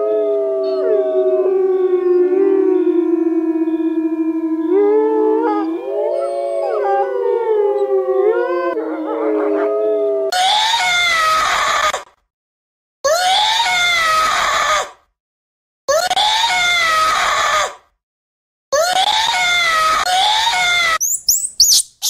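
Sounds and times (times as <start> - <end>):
wild canids howling: 0.0 - 10.4.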